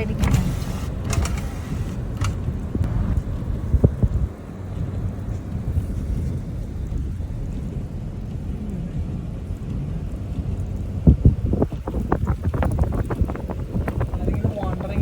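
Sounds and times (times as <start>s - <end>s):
engine and road noise in car: 0.0s - 15.0s.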